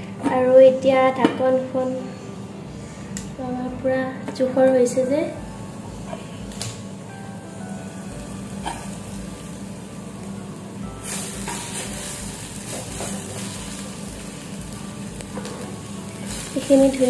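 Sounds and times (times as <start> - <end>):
masala sizzling in a pan: 6.1 - 17.0.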